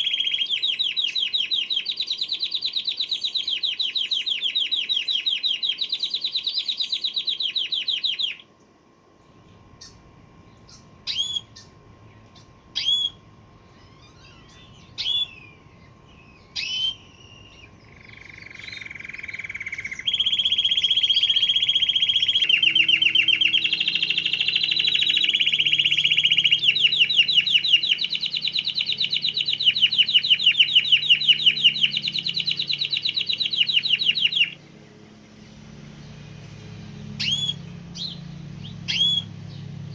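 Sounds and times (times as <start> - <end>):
canary trilling: 9.3 - 39.9
canary short chirps: 9.7 - 34.6, 37.1 - 39.7.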